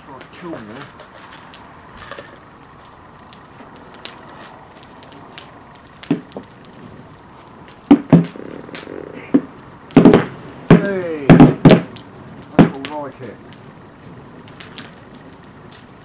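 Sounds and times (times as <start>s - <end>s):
bonfire crackling and popping: 0.0s - 16.0s
loud sharp bangs: 7.8s - 13.2s
dull thump: 9.3s - 11.9s.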